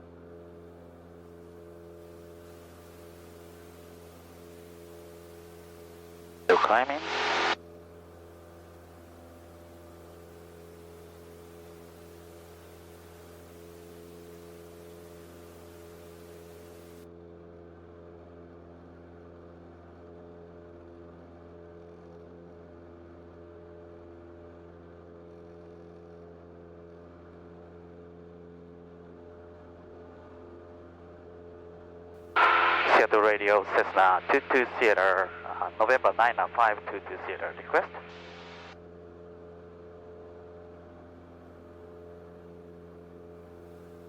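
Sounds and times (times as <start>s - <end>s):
airplane engine droning: 32.4s - 38.7s.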